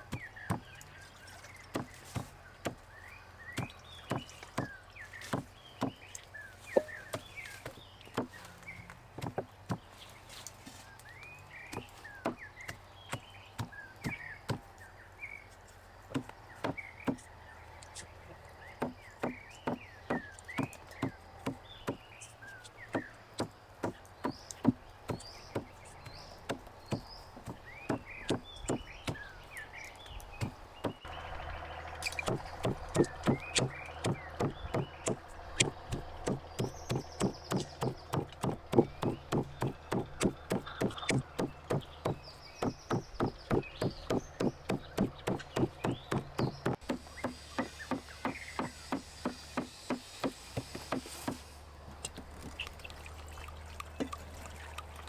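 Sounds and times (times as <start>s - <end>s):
knife chopping on cutting board: 32.2s - 51.4s.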